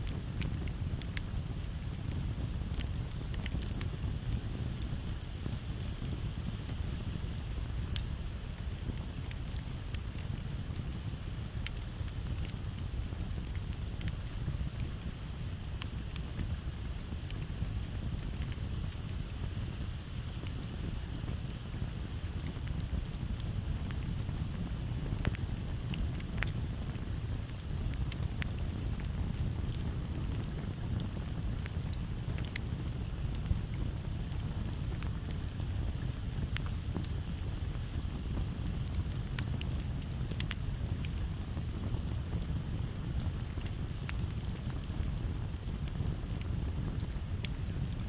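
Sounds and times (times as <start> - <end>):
campfire crackling and popping: 0.0 - 48.0
crickets chirring: 0.1 - 48.0.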